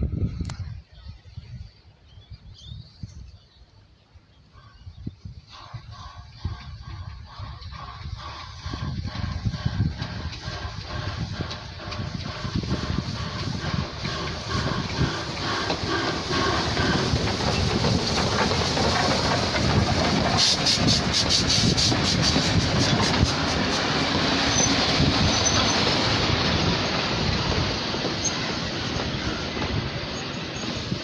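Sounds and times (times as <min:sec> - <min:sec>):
train wheels rumbling on rails: 0:05.2 - 0:31.0.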